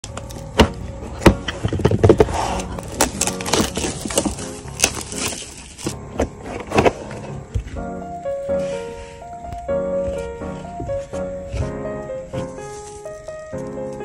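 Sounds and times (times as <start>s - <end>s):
quiet background music: 0.0s - 14.0s
packaging clicks and rustles: 1.4s - 6.0s.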